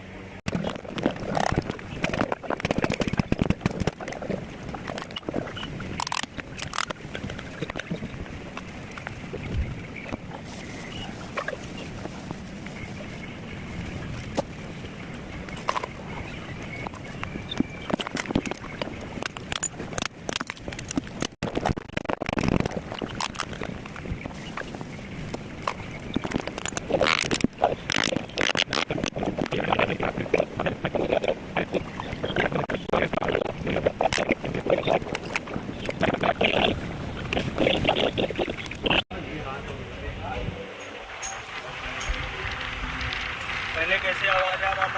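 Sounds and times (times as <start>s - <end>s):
small parts and tools clicking: 6.0s - 7.0s.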